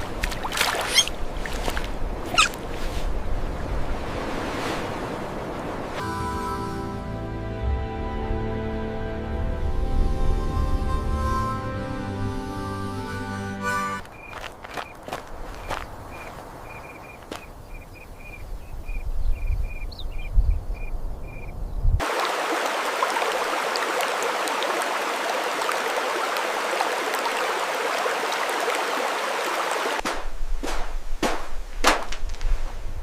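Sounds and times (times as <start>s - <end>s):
rushing water: 0.0s - 6.0s, 22.0s - 30.2s.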